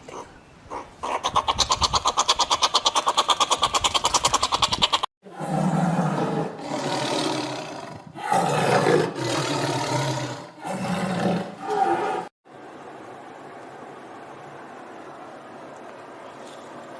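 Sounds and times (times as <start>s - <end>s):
large animal roaring: 5.3s - 12.3s.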